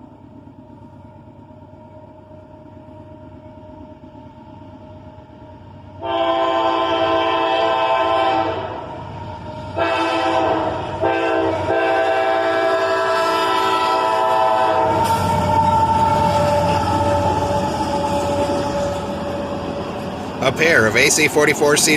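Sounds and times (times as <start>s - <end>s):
locomotive air horn blasts: 6.0s - 8.9s, 9.7s - 19.4s
diesel engine rumble: 14.2s - 21.9s.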